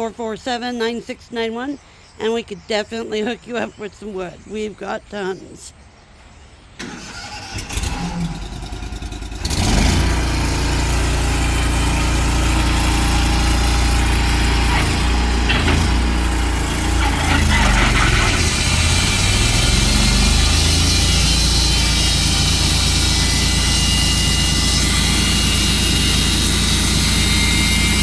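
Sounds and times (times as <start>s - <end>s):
sawmill engine cranking and running: 6.8s - 28.0s.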